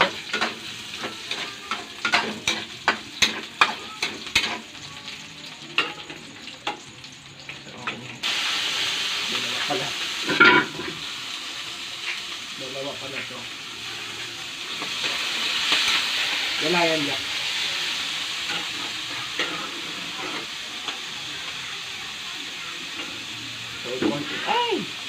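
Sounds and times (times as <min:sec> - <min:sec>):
metal spatula scraping a frying pan: 0:00.0 - 0:04.7, 0:18.4 - 0:20.5
onion and garlic sizzling in oil: 0:00.0 - 0:25.0.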